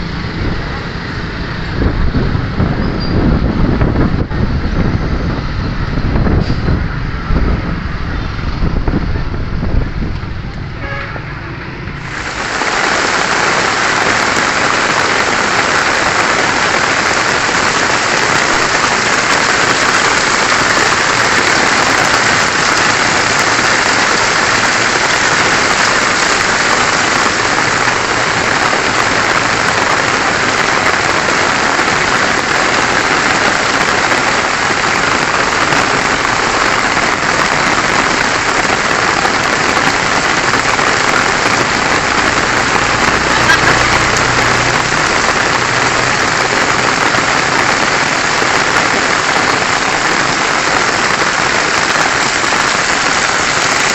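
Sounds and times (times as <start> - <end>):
loud rainfall hissing: 11.9 - 53.9.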